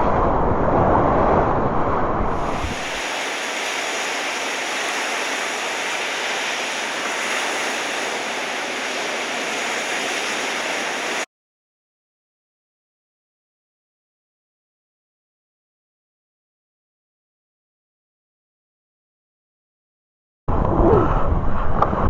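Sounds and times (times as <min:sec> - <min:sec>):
wind rumbling on microphone: 0:00.0 - 0:11.2, 0:20.5 - 0:22.0
waves breaking: 0:00.8 - 0:11.3.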